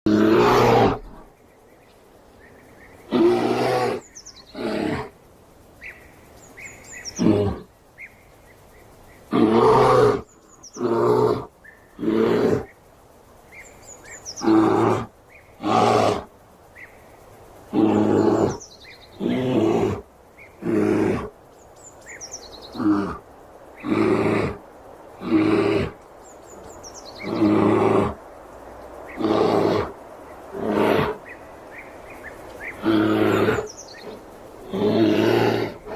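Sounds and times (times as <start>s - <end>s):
faint bird chirps: 5.7s - 9.3s, 21.5s - 22.9s.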